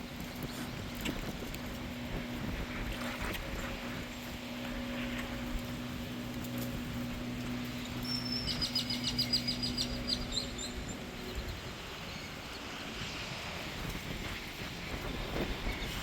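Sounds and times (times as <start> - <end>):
low hum: 0.0 - 16.0
songbird trilling: 7.8 - 11.5.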